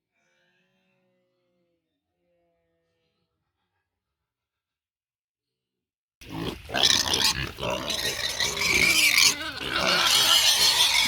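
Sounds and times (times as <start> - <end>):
pigs squealing and grunting: 6.2 - 11.0.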